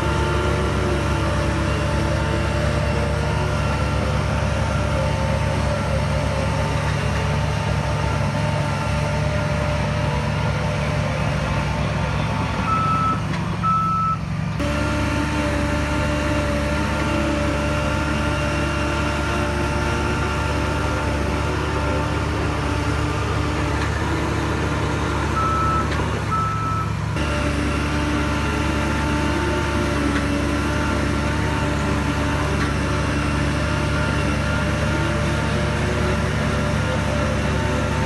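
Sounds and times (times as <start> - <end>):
diesel machinery running: 0.0 - 38.0
reversing alarm beeping: 12.7 - 14.2, 25.4 - 26.9.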